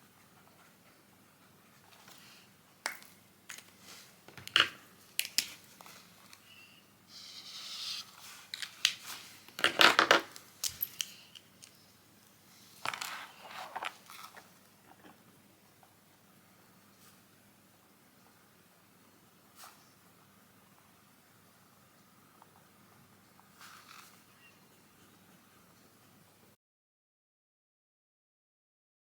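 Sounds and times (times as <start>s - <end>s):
rustling and crinkling: 12.6s - 15.2s, 23.4s - 24.3s.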